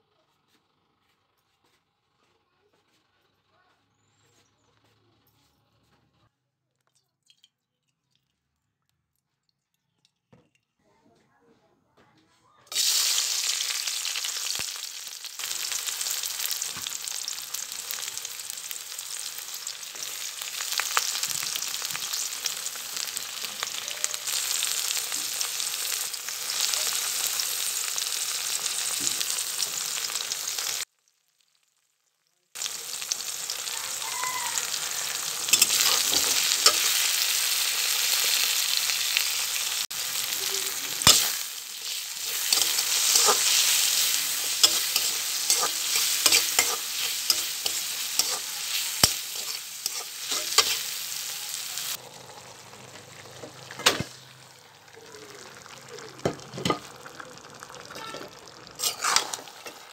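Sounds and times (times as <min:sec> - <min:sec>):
onions sizzling in hot oil: 0:12.7 - 0:59.9
stirring clicks and scrapes in wok: 0:35.4 - 0:37.0, 0:41.0 - 0:50.9, 0:58.7 - 0:59.9.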